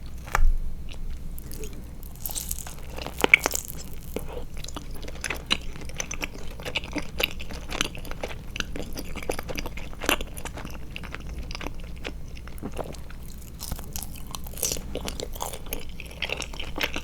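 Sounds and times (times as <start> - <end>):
close chewing with clicks: 0.0 - 17.0
sharp bite into gummy: 1.4 - 4.4.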